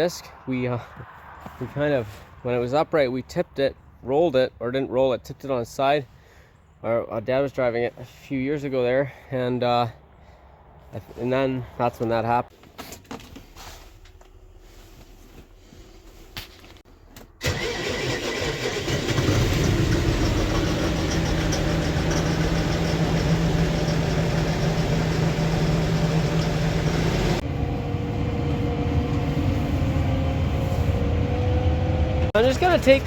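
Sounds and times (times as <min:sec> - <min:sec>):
tractor diesel engine: 0:17.4 - 0:33.0.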